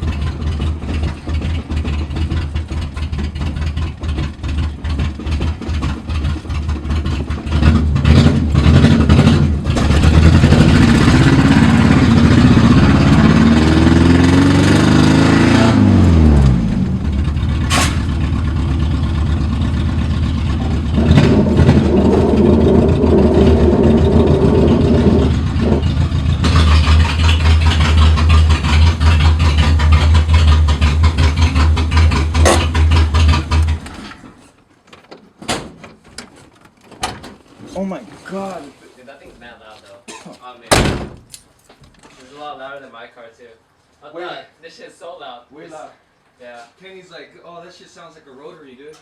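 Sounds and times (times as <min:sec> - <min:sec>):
car engine with loud exhaust: 0:00.0 - 0:34.6.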